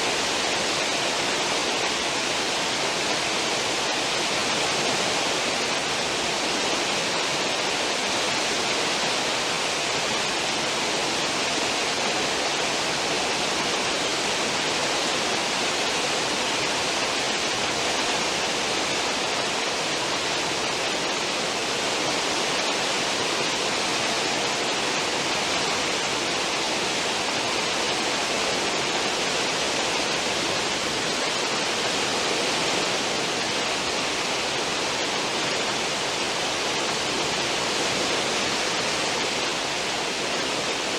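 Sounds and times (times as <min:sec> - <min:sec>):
ship wake water rushing: 0:00.0 - 0:40.9.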